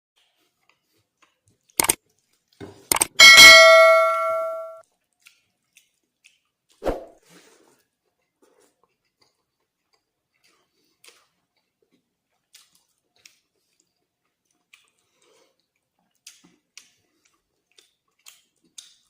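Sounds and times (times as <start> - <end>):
sharp clicks: 2.9 - 3.2
ringing metallic clang: 3.2 - 4.8.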